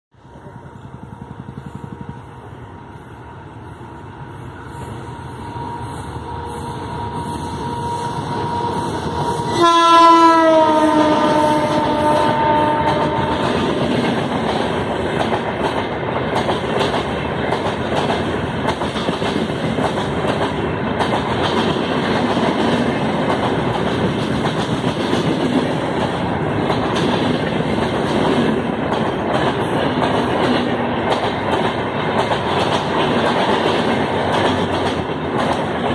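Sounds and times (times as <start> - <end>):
coaches rumbling on rails: 0.1 - 35.9
electric locomotive passing: 0.1 - 35.9
train horn: 4.7 - 13.9.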